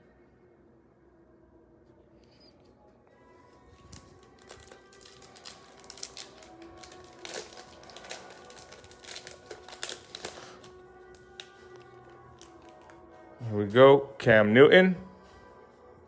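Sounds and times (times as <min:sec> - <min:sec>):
faint background music: 0:00.0 - 0:16.0
packaging crinkling and rustling: 0:03.5 - 0:13.1.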